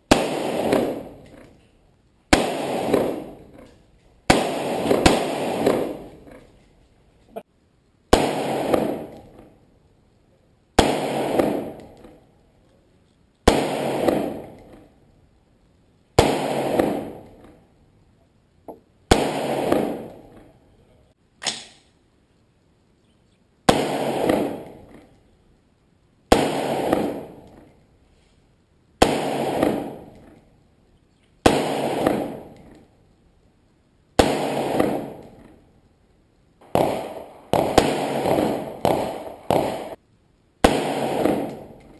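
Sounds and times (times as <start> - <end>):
rifle shots with echo: 0.1 - 1.6, 2.3 - 6.4, 8.1 - 9.5, 10.8 - 12.2, 13.5 - 14.9, 16.2 - 17.6, 19.1 - 20.4, 23.7 - 25.1, 26.3 - 27.7, 29.0 - 30.2, 31.4 - 32.8, 34.2 - 35.6, 36.6 - 40.0, 40.6 - 41.9.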